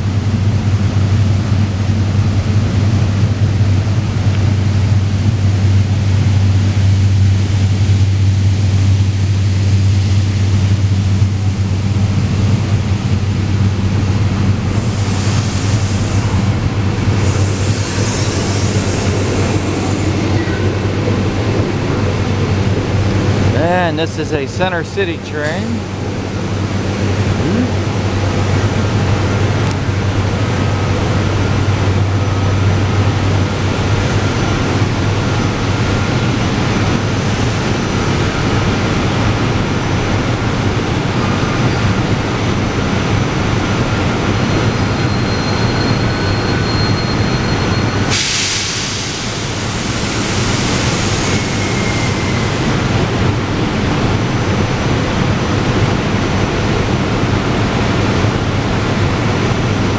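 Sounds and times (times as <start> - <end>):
electric train rumbling: 0.0 - 59.9
sudden hiss: 14.7 - 20.6, 26.6 - 30.0, 48.1 - 52.9.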